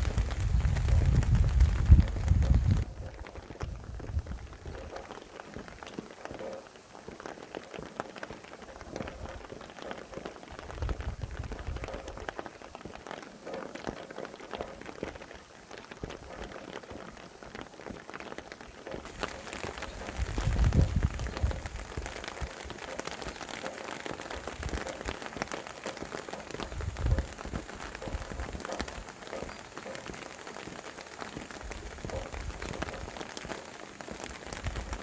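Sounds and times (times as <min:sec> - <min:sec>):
wind gusting: 0:00.0 - 0:05.0, 0:19.0 - 0:22.9, 0:26.6 - 0:29.1
raindrops ticking close by: 0:00.0 - 0:35.0
steady rain: 0:00.0 - 0:35.0.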